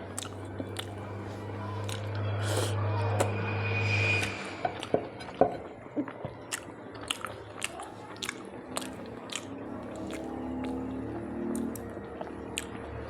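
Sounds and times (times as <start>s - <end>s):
person chewing: 0.0s - 3.3s, 4.2s - 12.8s
wet mouth clicks: 0.1s - 3.3s, 6.0s - 10.9s, 11.5s - 12.8s.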